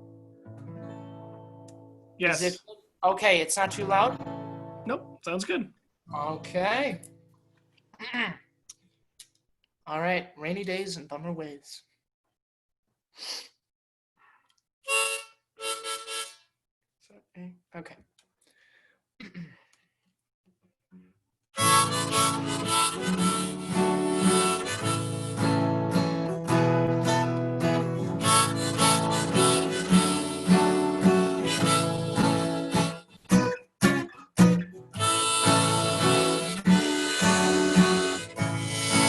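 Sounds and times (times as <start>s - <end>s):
acoustic guitar: 0.0s - 2.2s, 3.6s - 5.2s, 21.0s - 39.0s
harmonica playing: 14.8s - 16.5s, 21.6s - 39.0s.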